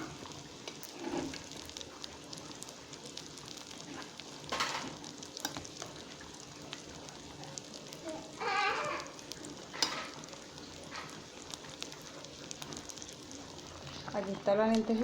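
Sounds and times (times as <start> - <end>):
food sizzling in a pot: 0.0 - 15.0
bleat-like animal call: 8.1 - 9.2.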